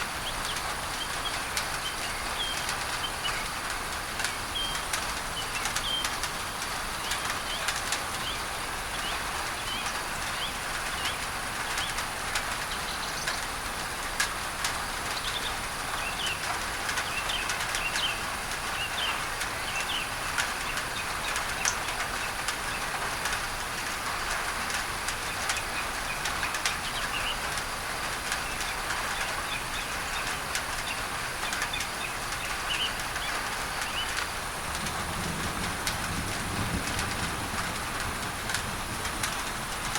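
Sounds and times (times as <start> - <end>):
rain on a tin roof: 0.0 - 39.9
birds chirping: 4.3 - 6.2, 28.4 - 34.2.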